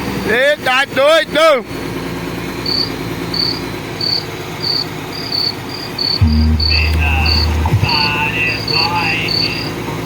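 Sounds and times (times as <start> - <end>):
crickets chirping: 2.6 - 9.8
deep bass tone: 6.2 - 9.9
steady low hum: 6.2 - 10.0.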